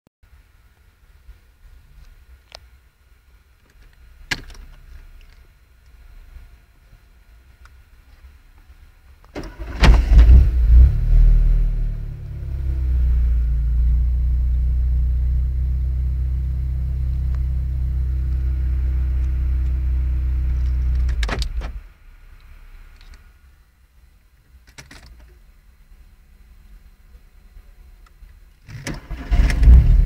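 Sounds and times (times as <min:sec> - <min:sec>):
car engine idling: 0:08.8 - 0:23.6, 0:29.0 - 0:30.0
car starter cranking: 0:09.4 - 0:10.5, 0:28.7 - 0:30.0.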